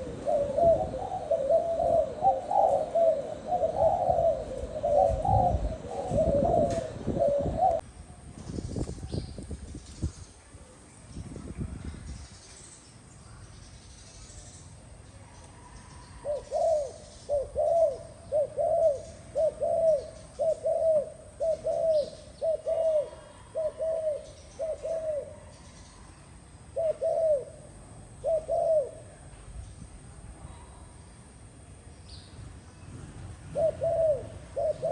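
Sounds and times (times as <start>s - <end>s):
dove cooing: 0.0s - 7.8s, 15.6s - 26.1s, 26.7s - 29.3s, 33.4s - 34.9s.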